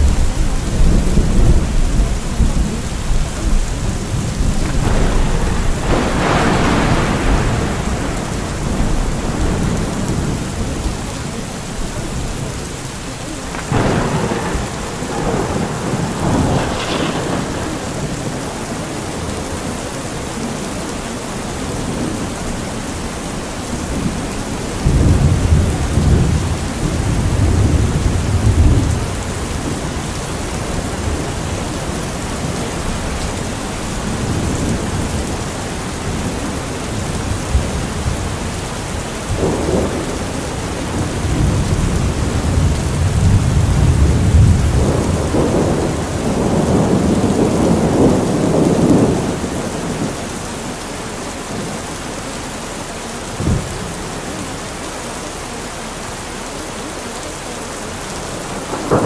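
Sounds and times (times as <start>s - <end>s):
sharp thunder crack: 0.0s - 19.6s
low rolling thunder: 0.0s - 51.8s, 53.2s - 54.5s, 58.1s - 59.0s
steady rain: 0.0s - 59.0s.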